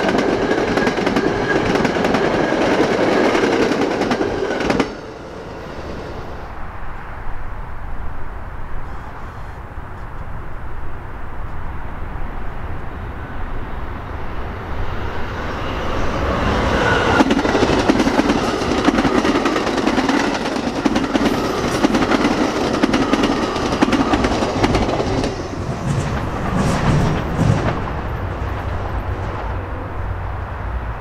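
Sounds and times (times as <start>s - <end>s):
train wheels clicking over rails: 0.0s - 6.2s, 15.3s - 29.5s.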